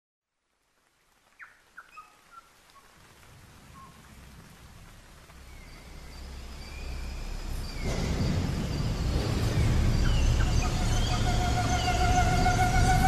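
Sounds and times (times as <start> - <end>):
steady hiss: 0.4 - 13.0
low rumble: 3.4 - 13.0
bird chirps: 5.5 - 13.0.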